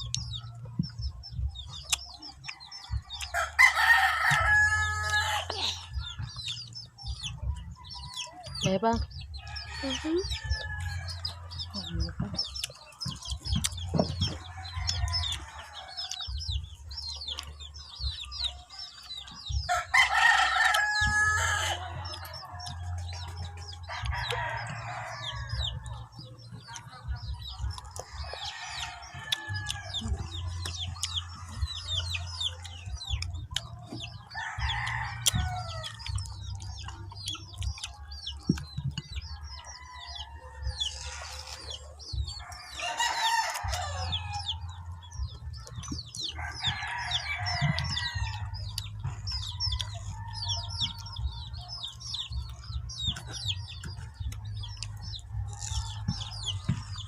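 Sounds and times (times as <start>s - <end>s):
chickens clucking: 0.0s - 57.0s
rooster crowing: 3.3s - 5.6s, 19.7s - 22.0s, 42.6s - 44.6s.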